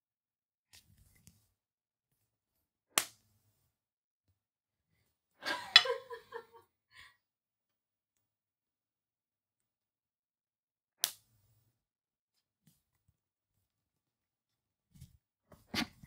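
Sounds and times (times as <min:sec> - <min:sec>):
rubber band snapping on skin: 0:03.0 - 0:03.2.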